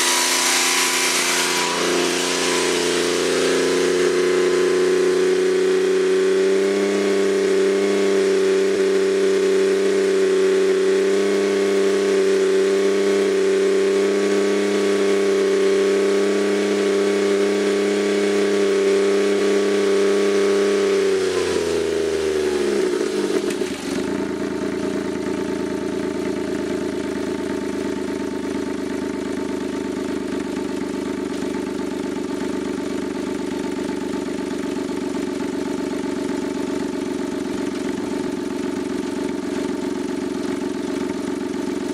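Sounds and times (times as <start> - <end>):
car engine revving and idling: 0.0 - 41.9.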